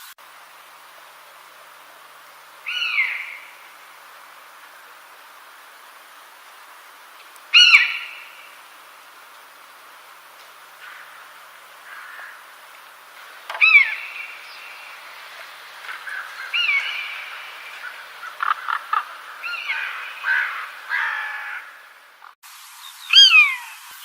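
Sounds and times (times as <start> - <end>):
bird calling: 2.5 - 6.1, 7.2 - 9.0, 10.4 - 23.9.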